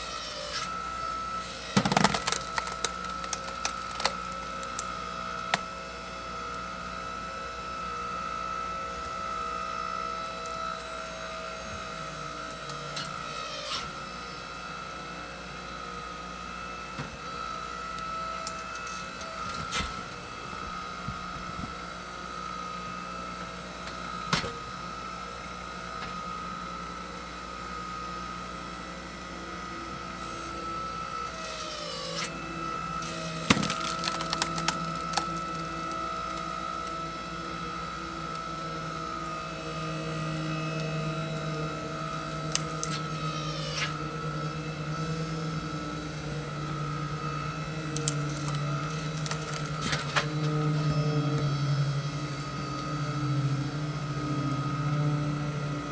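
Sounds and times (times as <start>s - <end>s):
log splitter engine whine: 0.0s - 55.9s
wood splitting cracks: 0.3s - 5.7s, 30.5s - 44.1s, 47.3s - 50.8s.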